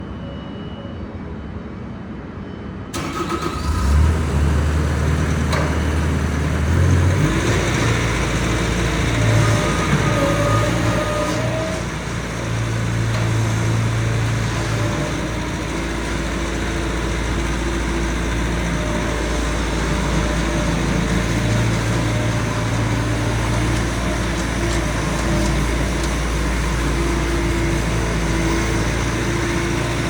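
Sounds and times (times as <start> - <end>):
diesel engine starting and running: 3.0 - 30.0.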